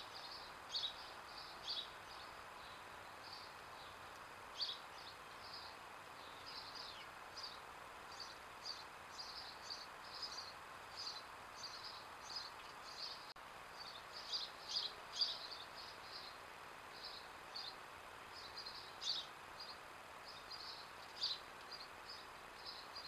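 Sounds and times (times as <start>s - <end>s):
birds chirping: 0.0s - 23.0s
faint steady hiss: 0.0s - 23.0s.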